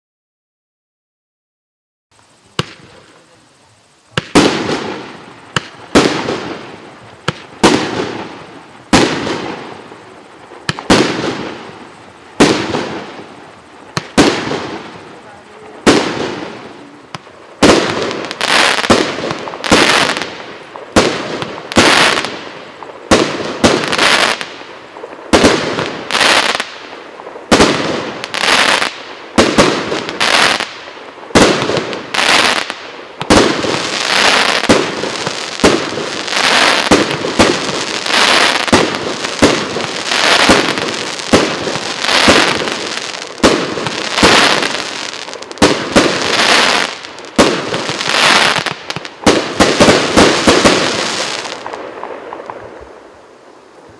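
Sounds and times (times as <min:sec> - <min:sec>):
fireworks crackling: 0:02.1 - 0:53.9
fireworks shells bursting: 0:25.3 - 0:51.8.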